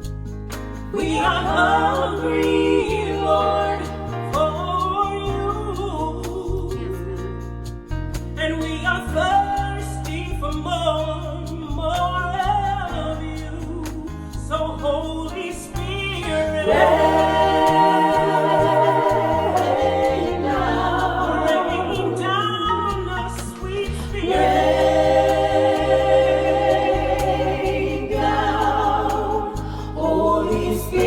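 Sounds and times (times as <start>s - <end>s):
electric bass and band: 0.0s - 31.0s
singers vocalising: 0.9s - 5.4s, 16.2s - 31.0s.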